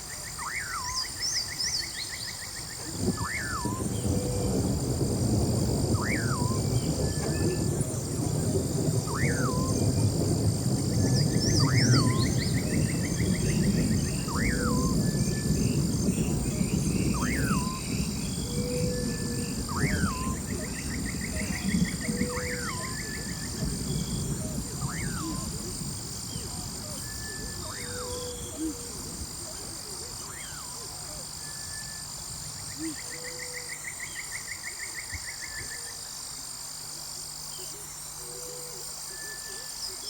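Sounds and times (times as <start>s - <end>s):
wind and water rush: 2.8s - 30.3s.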